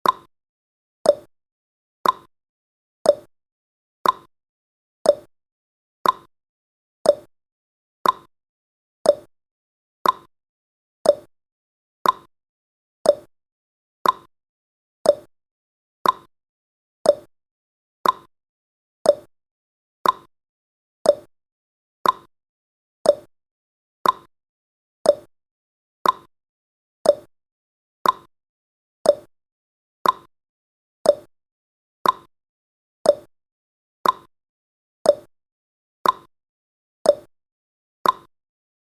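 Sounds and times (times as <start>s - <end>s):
clock ticking: 2.0s - 2.3s, 6.0s - 6.3s, 8.0s - 8.3s, 10.0s - 10.3s, 12.0s - 12.3s, 13.1s - 13.3s, 14.0s - 14.3s, 15.1s - 15.3s, 16.0s - 16.3s, 18.0s - 18.3s, 20.0s - 20.3s, 22.0s - 22.3s, 24.0s - 24.3s, 25.1s - 25.3s, 26.0s - 26.3s, 27.1s - 27.3s, 28.0s - 28.3s, 29.1s - 29.3s, 30.0s - 30.3s, 32.0s - 32.3s, 33.1s - 33.3s, 34.0s - 34.3s, 36.0s - 36.3s, 38.0s - 38.3s.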